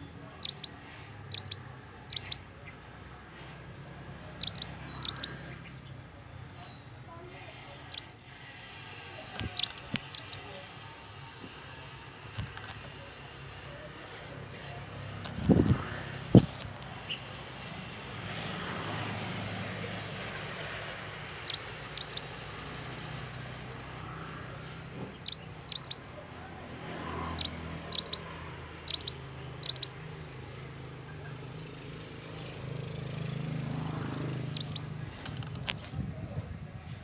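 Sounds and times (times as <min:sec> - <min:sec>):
bird giving high chirps: 0:00.4 - 0:02.5, 0:04.3 - 0:05.7, 0:07.9 - 0:08.2, 0:09.4 - 0:10.5, 0:21.4 - 0:23.3, 0:25.1 - 0:26.3, 0:27.2 - 0:30.0, 0:34.4 - 0:34.9.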